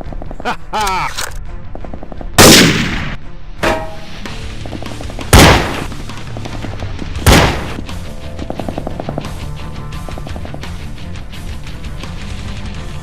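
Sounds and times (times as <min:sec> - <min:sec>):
background music: 0:00.0 - 0:13.0
loud gunshots: 0:02.4 - 0:03.2, 0:05.3 - 0:05.9, 0:07.2 - 0:07.8.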